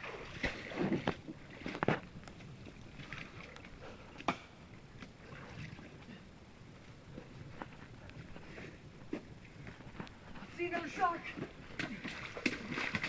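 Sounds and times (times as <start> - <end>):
footsteps and scuffling on creek bed: 0.0 - 13.0.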